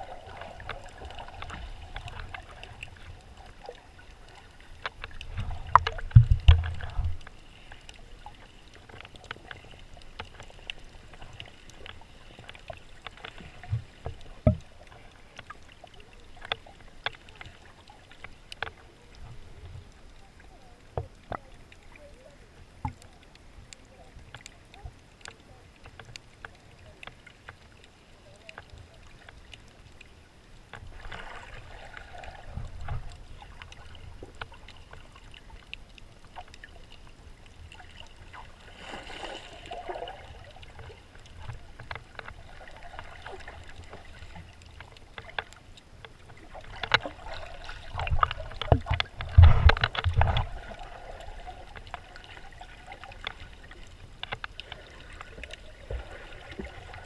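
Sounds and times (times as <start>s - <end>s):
muffled water sloshing: 0.0s - 57.0s
small clicks: 0.6s - 20.2s, 22.8s - 31.4s, 40.5s - 50.7s, 51.7s - 56.7s.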